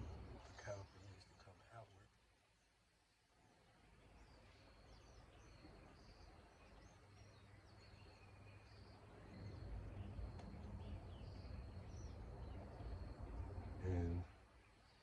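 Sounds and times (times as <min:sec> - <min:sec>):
birds chirping: 0:00.0 - 0:15.0
low rumble: 0:09.0 - 0:14.3.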